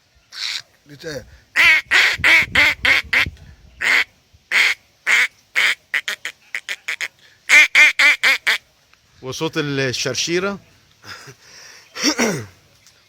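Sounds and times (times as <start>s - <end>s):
man imitating duck quacks: 1.6s - 8.6s.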